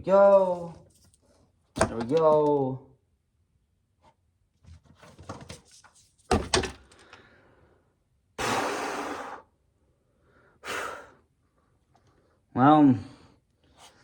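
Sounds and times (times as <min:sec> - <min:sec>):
corn ears knocking and clattering: 0:01.8 - 0:02.6
heavy thunk: 0:06.3 - 0:06.8.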